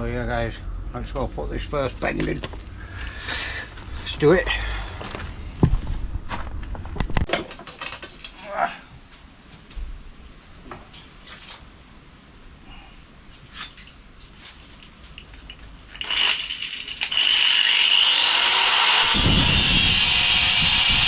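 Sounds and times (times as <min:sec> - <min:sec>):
power tool whine: 0:16.0 - 0:21.0
tool cutting sheet steel: 0:16.0 - 0:21.0.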